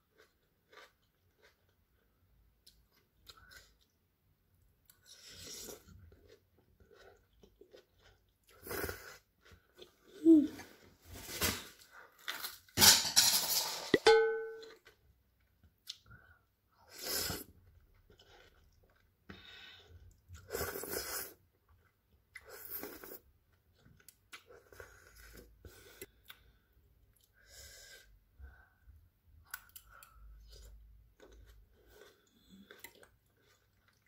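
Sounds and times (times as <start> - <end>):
crunchy chewing: 0.0 - 3.9, 4.9 - 10.1
noodles being slurped: 4.9 - 10.1, 19.7 - 21.4.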